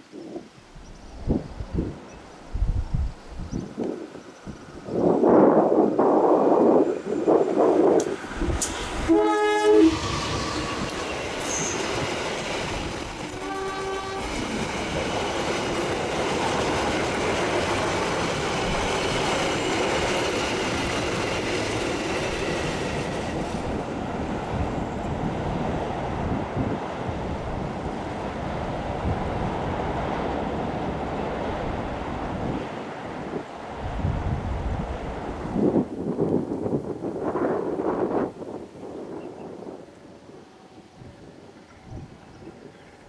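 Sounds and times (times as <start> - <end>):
diesel locomotive engine: 4.6 - 35.4
train wheels clattering on rails: 7.8 - 9.1, 9.9 - 24.0
train horn: 9.0 - 11.8, 13.2 - 14.4.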